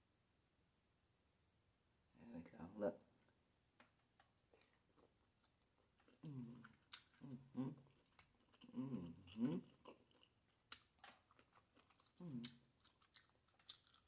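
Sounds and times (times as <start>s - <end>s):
wet chewing and lip smacks: 4.2s - 14.0s.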